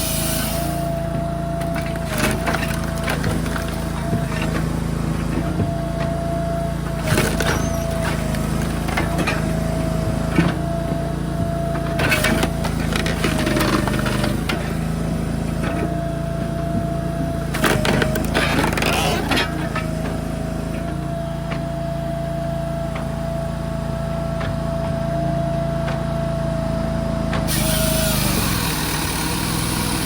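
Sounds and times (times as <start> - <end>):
firewood machine engine whining: 0.0 - 30.0.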